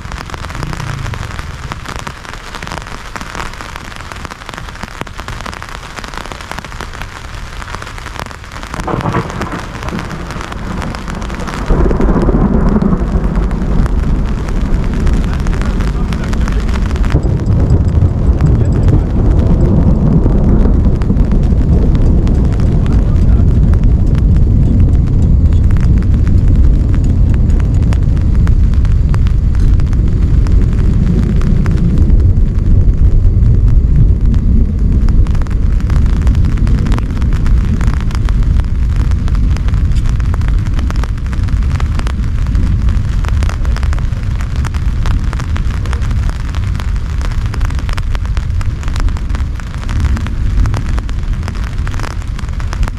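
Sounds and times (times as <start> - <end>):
heavy rain falling: 0.0 - 52.9
raindrops ticking: 0.0 - 52.9.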